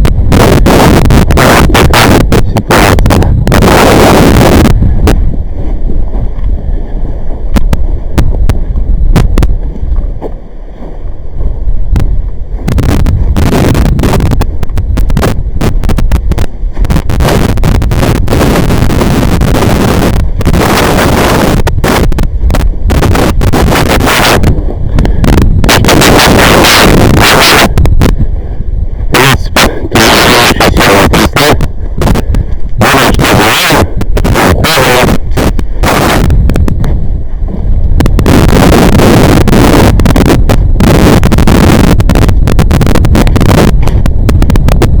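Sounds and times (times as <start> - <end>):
steady low rumble: 0.0 - 45.0
wind buffeting microphone: 0.0 - 45.0.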